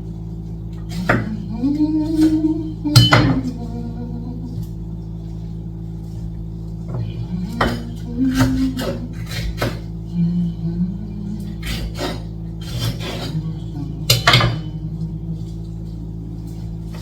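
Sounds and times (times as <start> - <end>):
utensils clinking on cookware: 2.9 - 3.6, 14.1 - 14.7.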